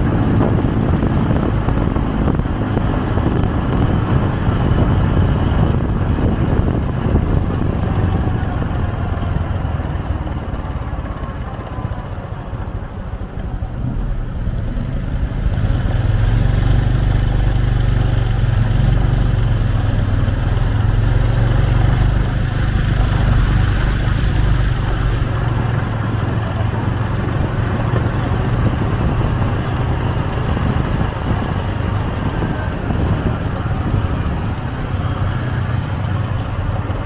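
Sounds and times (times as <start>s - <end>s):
motorcycle engine running: 0.0s - 37.0s
road and wind noise: 0.0s - 37.0s.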